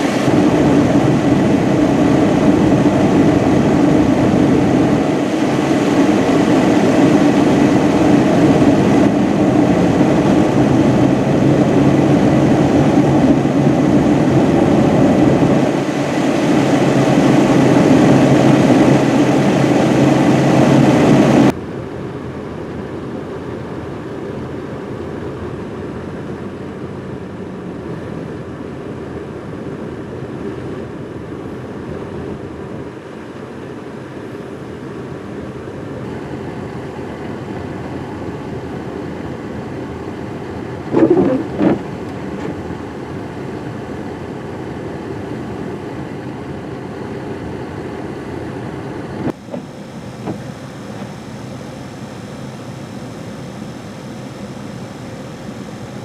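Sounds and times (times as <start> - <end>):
car running: 40.9 - 42.7.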